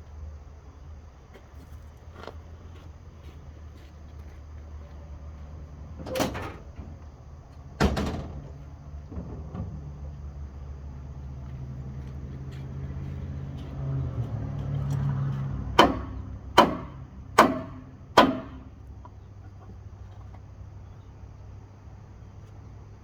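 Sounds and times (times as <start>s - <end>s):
sharp knocks: 15.8s - 18.7s.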